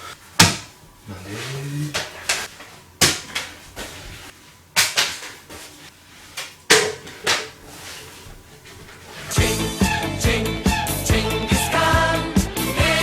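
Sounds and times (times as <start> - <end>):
background music with beat: 9.3 - 13.0.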